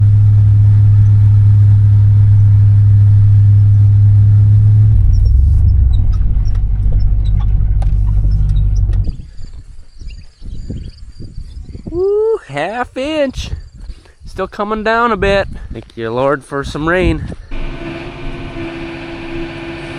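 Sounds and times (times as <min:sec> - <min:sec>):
vehicle engine humming: 0:00.0 - 0:10.0, 0:17.5 - 0:19.9
crickets chirping: 0:05.0 - 0:16.0.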